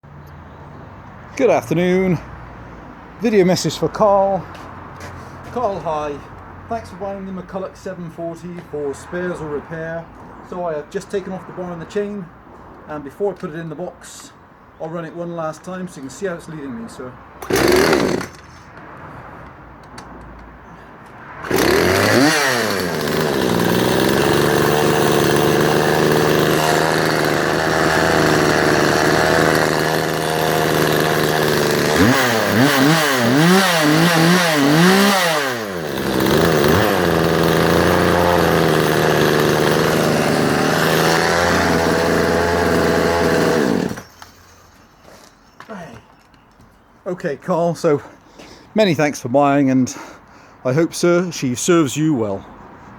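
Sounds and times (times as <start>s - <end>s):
chainsaw engine idling and revving: 17.4s - 18.6s, 21.4s - 44.4s.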